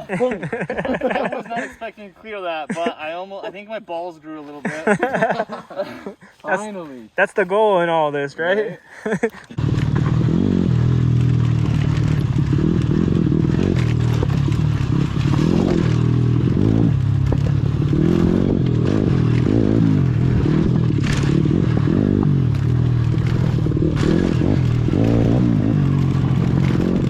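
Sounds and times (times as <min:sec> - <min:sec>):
motorbike engine revving: 0:09.5 - 0:27.0
bike knocking over rough ground: 0:11.0 - 0:13.0, 0:13.6 - 0:16.3.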